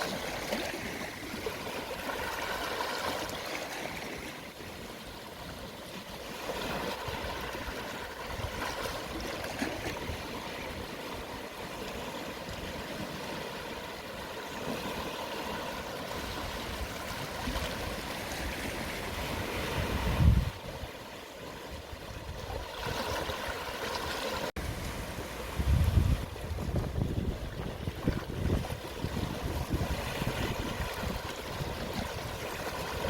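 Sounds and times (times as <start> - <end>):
sea waves on shore: 0.0 - 33.0
wind buffeting microphone: 16.2 - 21.0, 24.6 - 33.0.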